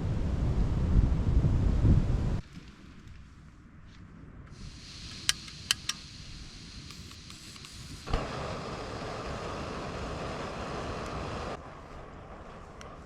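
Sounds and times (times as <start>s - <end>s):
faint steady hiss: 2.4s - 13.0s
sharp clicks: 5.0s - 6.1s, 6.8s - 8.2s.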